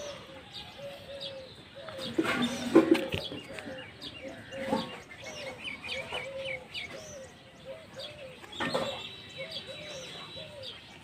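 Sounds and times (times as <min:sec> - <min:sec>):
birds calling: 0:00.0 - 0:11.0.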